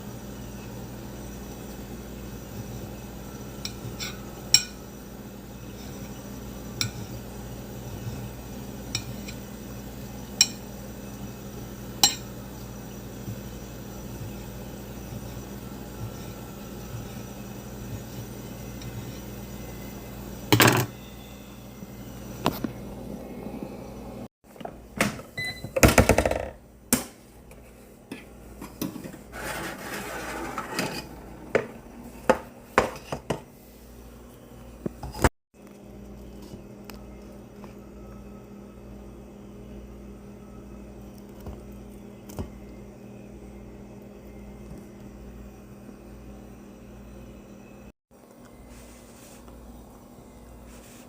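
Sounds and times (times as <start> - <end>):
dishes and utensils clattering: 28.1 - 33.4.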